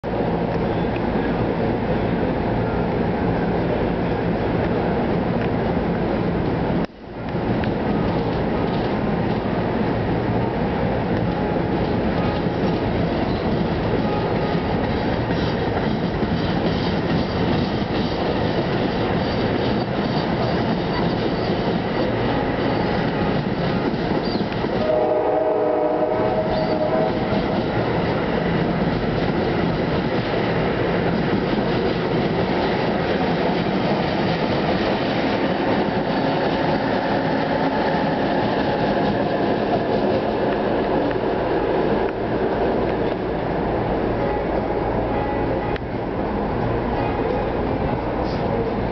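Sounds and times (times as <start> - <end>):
train wheels rumbling on rail: 0.0 - 48.9
train horn: 14.0 - 14.8, 24.7 - 27.8, 44.1 - 46.0.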